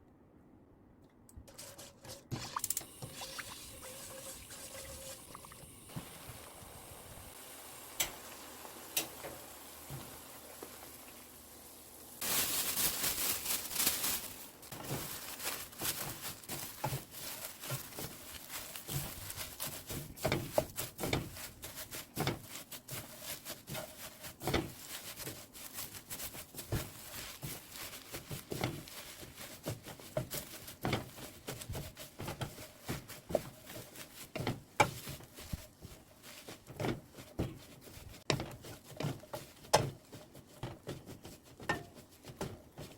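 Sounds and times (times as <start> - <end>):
cooking utensil scraping and tapping: 1.4 - 3.4, 8.0 - 10.8, 19.8 - 21.4, 38.2 - 42.9
seaweed sizzling in a pan: 2.8 - 15.0, 15.7 - 39.8.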